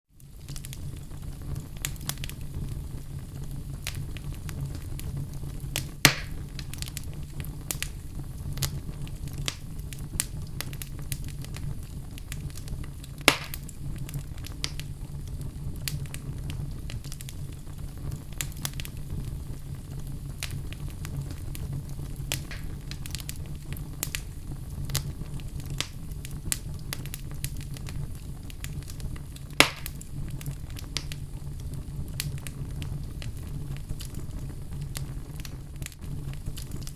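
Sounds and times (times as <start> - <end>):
wood fire crackling: 0.1 - 36.9
fire pops: 0.2 - 36.9
low steady rumble: 0.2 - 36.9.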